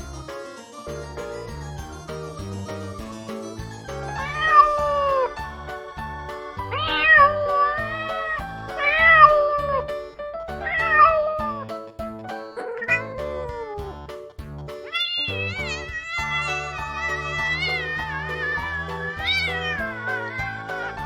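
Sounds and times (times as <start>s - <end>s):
background music: 0.0s - 21.0s
cat meowing: 14.9s - 21.0s.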